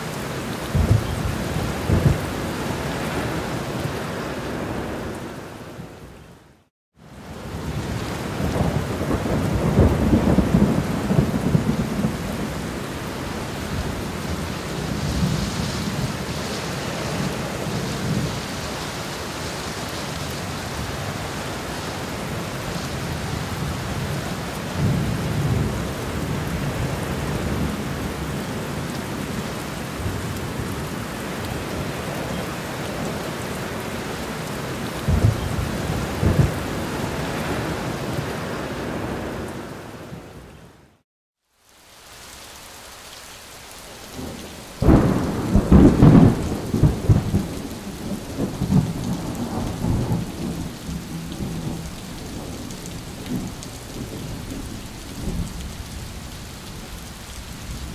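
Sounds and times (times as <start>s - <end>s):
heavy rain: 0.0s - 57.9s
thunder rumbling: 0.6s - 5.2s, 7.5s - 18.5s, 35.0s - 40.2s, 44.2s - 56.9s.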